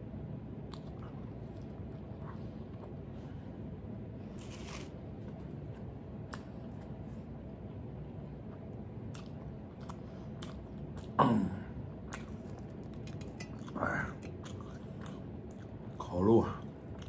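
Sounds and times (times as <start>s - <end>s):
person chewing flatbread: 0.7s - 3.5s, 4.3s - 7.3s, 8.5s - 11.2s, 12.0s - 16.0s.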